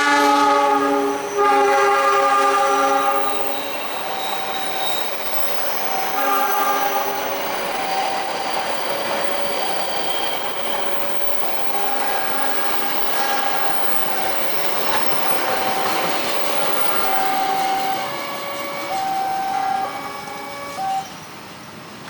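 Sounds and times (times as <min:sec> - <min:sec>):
train horn blasts: 0:00.0 - 0:05.1, 0:05.8 - 0:08.2, 0:11.6 - 0:21.3
train rolling past: 0:00.0 - 0:22.0.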